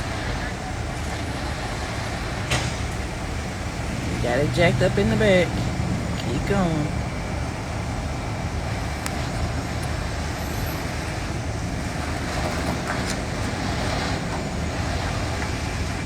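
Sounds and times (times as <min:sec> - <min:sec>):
heavy diesel engines rumbling: 0:00.0 - 0:16.0
street traffic: 0:00.0 - 0:16.0.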